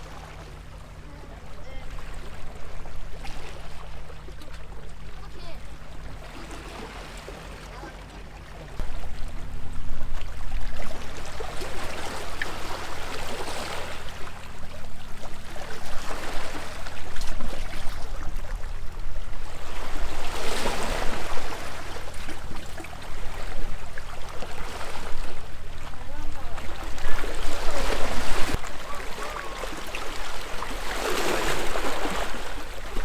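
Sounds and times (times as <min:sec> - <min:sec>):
low steady hum: 0:00.0 - 0:33.0
sea waves against stone wall: 0:00.0 - 0:33.0.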